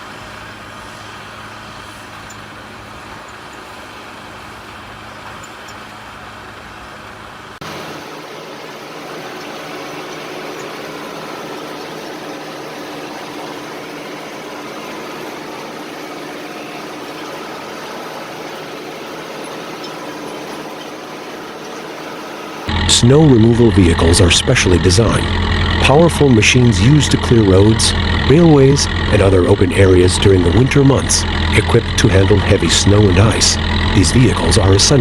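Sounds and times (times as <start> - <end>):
heavy machine engine running: 0.0 - 35.0
loud noisy engine running: 0.0 - 35.0.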